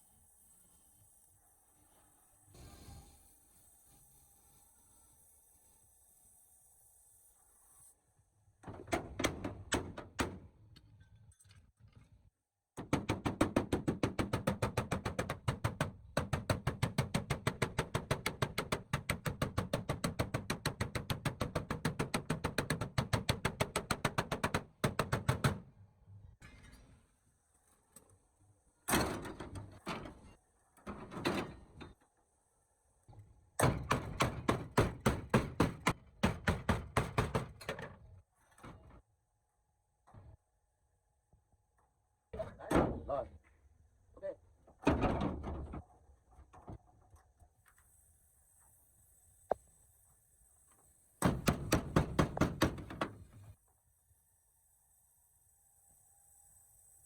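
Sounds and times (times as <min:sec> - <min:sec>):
rapid hammer knocks on metal: 0:12.8 - 0:25.6, 0:33.6 - 0:37.9, 0:51.2 - 0:53.2.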